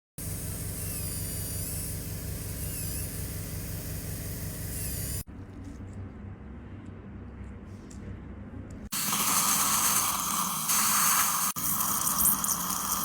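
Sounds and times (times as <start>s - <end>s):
dental equipment hiss and whistle: 0.6s - 5.3s, 9.0s - 13.0s.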